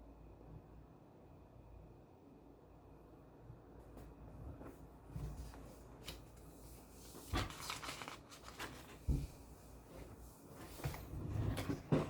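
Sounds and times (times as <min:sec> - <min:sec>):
handling rustling: 0:05.2 - 0:12.0.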